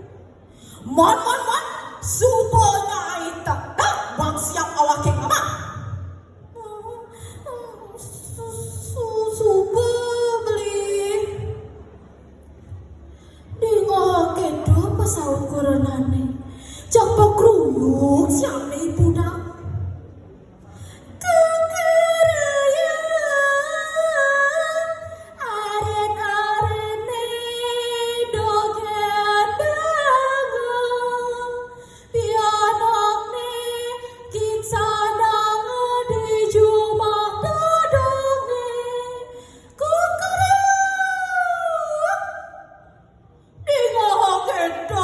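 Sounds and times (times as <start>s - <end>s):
woman singing unaccompanied: 0.8s - 11.7s, 13.5s - 19.8s, 21.2s - 42.8s, 43.6s - 45.0s.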